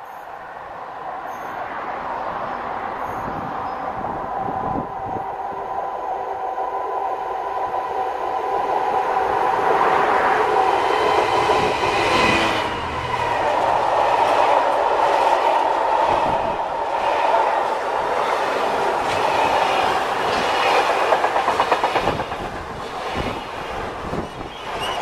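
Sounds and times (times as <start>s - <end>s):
wheels rattling on rails: 9.2s - 25.0s.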